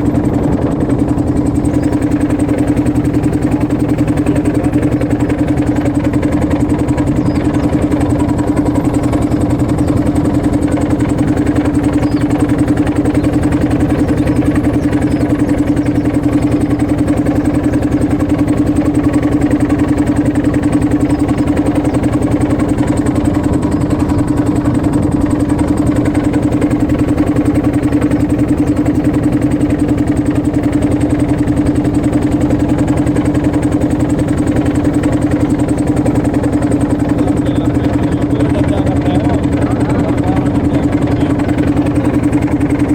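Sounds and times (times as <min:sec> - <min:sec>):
motorboat engine humming: 0:00.0 - 0:42.9.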